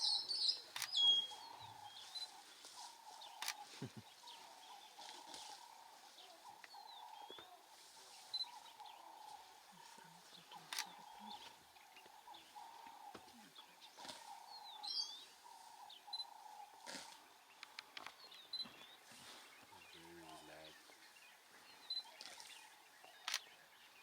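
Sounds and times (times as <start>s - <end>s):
bird chirps: 0.0s - 24.0s
sharp clicks: 0.7s - 1.0s, 3.4s - 3.6s, 17.6s - 18.2s.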